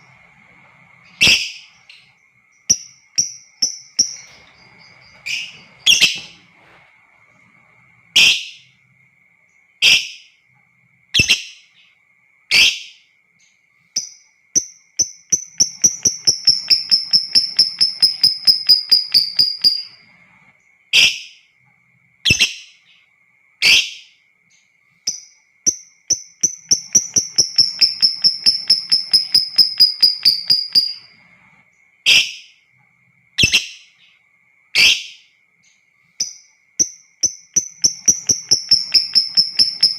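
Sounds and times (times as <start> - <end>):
faint steady high tone: 0.0 - 20.8, 22.8 - 39.9
bird chattering trill: 1.1 - 2.1, 15.0 - 19.9, 26.1 - 31.1, 36.2 - 39.9.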